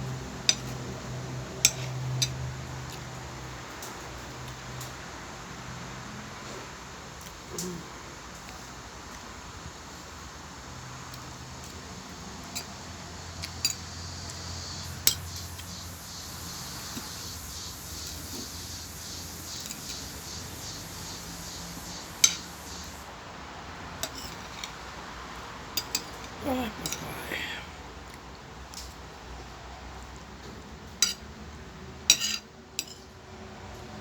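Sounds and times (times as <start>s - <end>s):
cutlery clinking on a plate: 32.1s - 33.0s.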